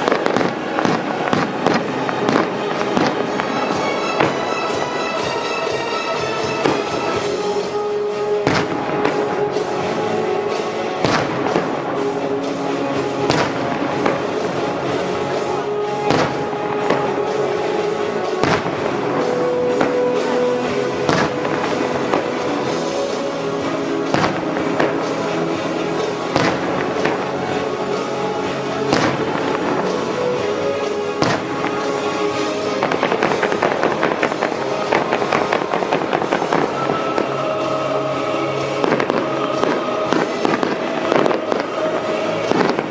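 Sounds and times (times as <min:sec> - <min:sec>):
fireworks crackling pops: 0:00.0 - 0:04.6, 0:06.5 - 0:28.1, 0:28.8 - 0:37.4, 0:38.8 - 0:42.9
fireworks bang: 0:00.0 - 0:05.3, 0:08.4 - 0:09.5, 0:11.0 - 0:12.1, 0:13.2 - 0:14.5, 0:16.0 - 0:17.3, 0:18.4 - 0:22.5, 0:24.0 - 0:25.2, 0:26.3 - 0:27.3, 0:28.9 - 0:30.0, 0:31.2 - 0:31.9
music over loudspeakers: 0:00.0 - 0:42.9.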